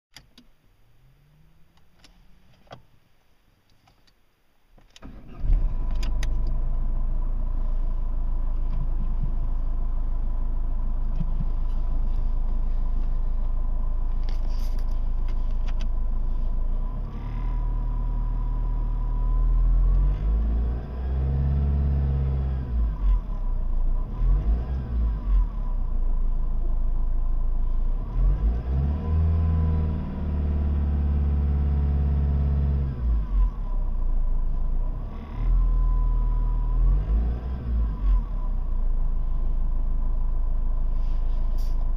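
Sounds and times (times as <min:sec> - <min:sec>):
diesel engine starting and idling: 0:05.0 - 0:41.9
engine revving: 0:16.3 - 0:25.8, 0:27.8 - 0:33.8, 0:34.8 - 0:38.6.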